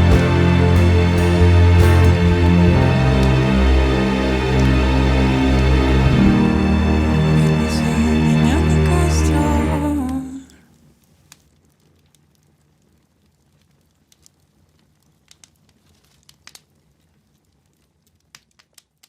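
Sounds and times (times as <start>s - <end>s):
music chord ringing out: 0.0s - 10.5s
sharp crackles and clicks: 11.3s - 19.0s.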